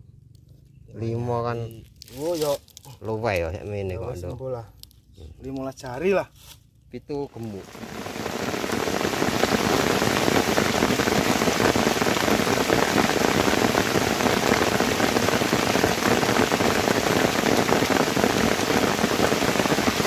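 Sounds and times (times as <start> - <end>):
heavy rain on leaves: 7.4 - 20.0.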